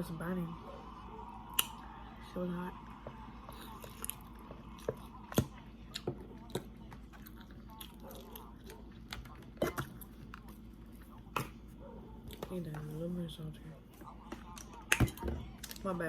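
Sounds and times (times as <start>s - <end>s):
chewing with mouth smacks: 3.5s - 11.6s.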